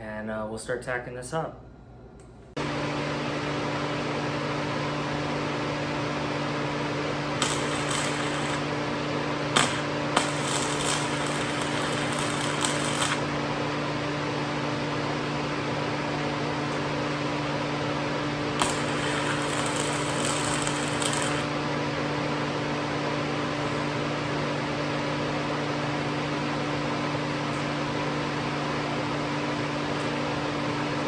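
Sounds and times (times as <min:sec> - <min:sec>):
welder fan hum: 0:01.4 - 0:31.0
welding arc crackling: 0:07.3 - 0:08.8, 0:09.5 - 0:13.4, 0:18.6 - 0:21.6.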